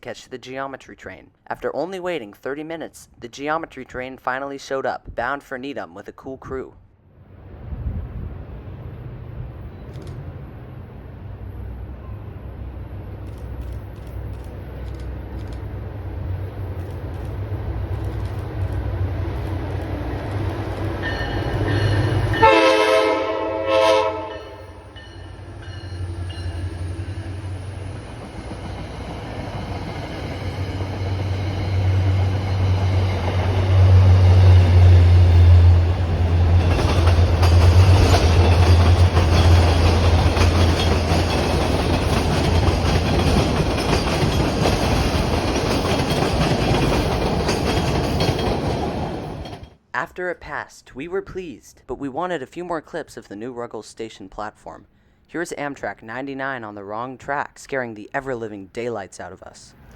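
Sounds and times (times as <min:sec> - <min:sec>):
train running past: 0:07.2 - 0:49.8
locomotive droning: 0:08.7 - 0:49.6
train horn blast: 0:22.3 - 0:24.9.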